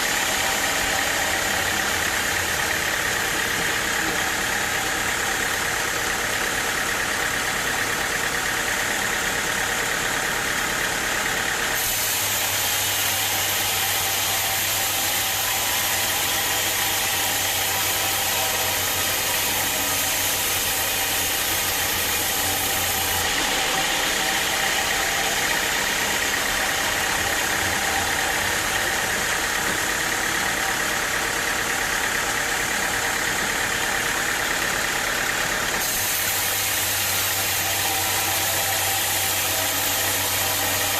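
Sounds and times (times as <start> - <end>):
sawmill machinery drone: 0.0 - 40.9.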